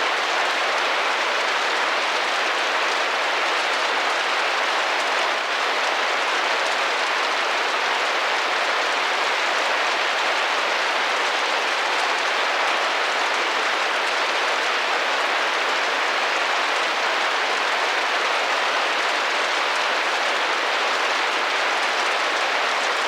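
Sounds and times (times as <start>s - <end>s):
rain on a window pane: 0.0s - 23.0s.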